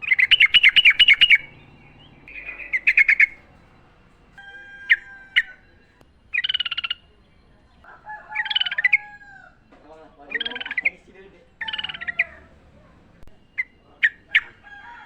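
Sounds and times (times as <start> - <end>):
bulbul singing bubbling chatter: 0.0 - 9.1, 10.2 - 12.7.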